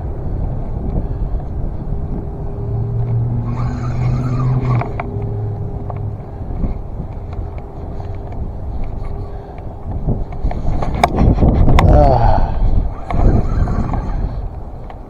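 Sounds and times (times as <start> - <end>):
steady hum: 0.0 - 15.0
strong wind buffeting microphone: 0.0 - 15.0
faint ticks: 2.9 - 11.9.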